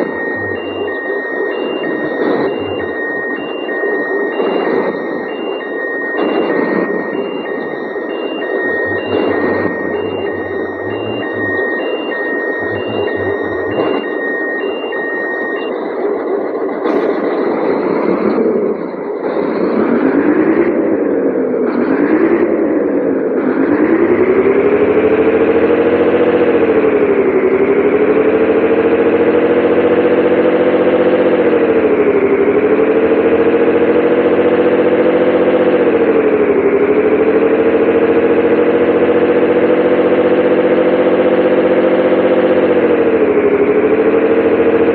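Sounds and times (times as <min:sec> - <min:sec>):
electronic warning beeps: 0:00.0 - 0:19.6
truck diesel engine revving: 0:08.2 - 0:11.8.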